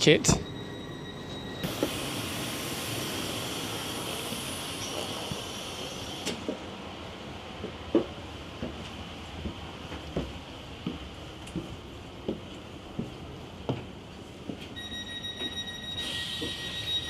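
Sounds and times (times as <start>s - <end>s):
train air hiss: 1.6s - 6.6s.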